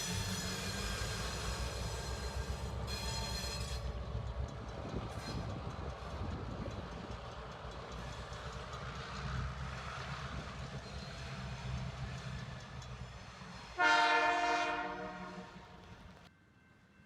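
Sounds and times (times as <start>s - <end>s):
train wheels rumbling on rail: 0.0s - 16.3s
train horn: 13.7s - 16.0s.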